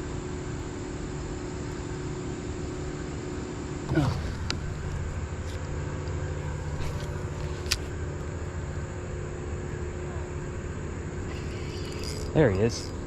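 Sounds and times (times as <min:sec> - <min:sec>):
fishing line whine: 0:00.0 - 0:13.0
steady low hum: 0:00.0 - 0:13.0
sharp reel clicks: 0:11.3 - 0:13.0.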